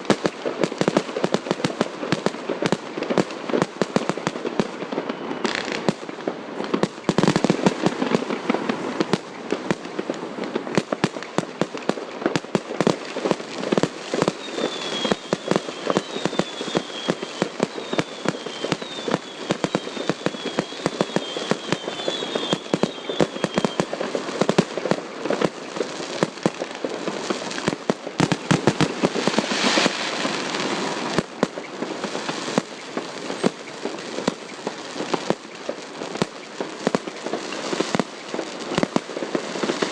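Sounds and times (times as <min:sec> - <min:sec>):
fireworks cracks and bangs: 0:00.0 - 0:39.9
high falling firework whistles: 0:04.8 - 0:05.9, 0:14.0 - 0:24.2, 0:28.2 - 0:38.9.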